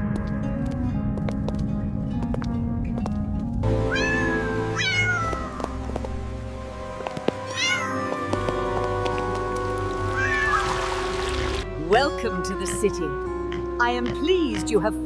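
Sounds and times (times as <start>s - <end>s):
background music: 0.0s - 15.0s
cat meowing: 3.8s - 5.9s, 7.4s - 8.4s, 10.1s - 11.0s.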